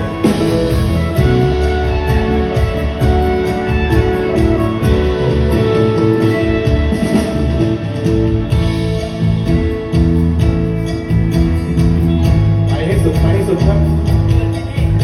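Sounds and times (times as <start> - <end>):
electric guitar: 0.0 - 15.0
live band playing: 0.0 - 15.0.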